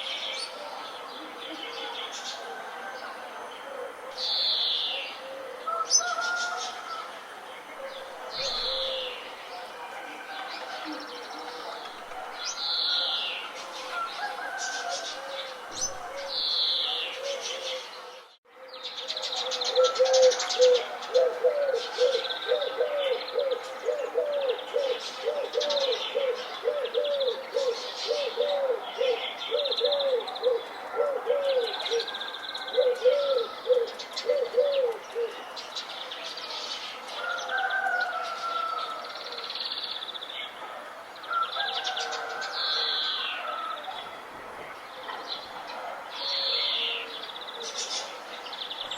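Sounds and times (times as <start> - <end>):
birds chirping and singing: 0.0 - 40.6.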